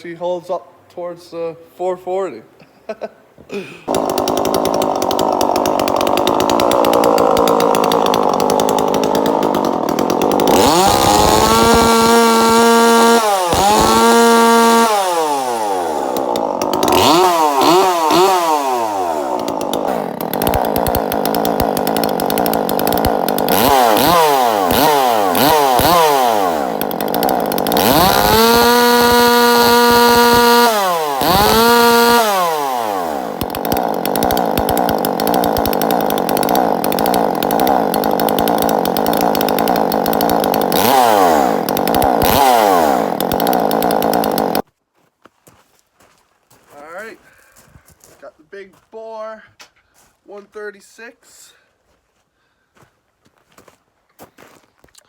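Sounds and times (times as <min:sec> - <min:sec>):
chainsaw revving: 0:03.9 - 0:44.6.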